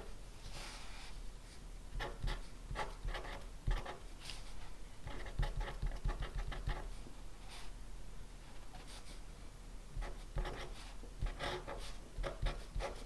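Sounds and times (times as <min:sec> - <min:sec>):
pen scratching on paper: 0:02.0 - 0:04.0, 0:05.0 - 0:06.9, 0:10.0 - 0:13.0.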